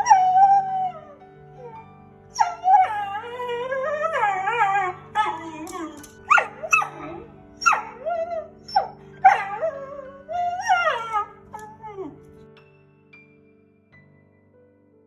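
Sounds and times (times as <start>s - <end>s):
background music: 0.0s - 15.0s
dog barking and yelping: 2.4s - 12.2s.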